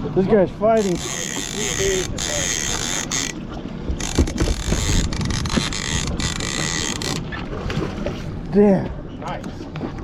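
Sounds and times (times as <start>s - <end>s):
fishing reel clicking and whirring: 0.8s - 3.4s, 4.0s - 7.3s.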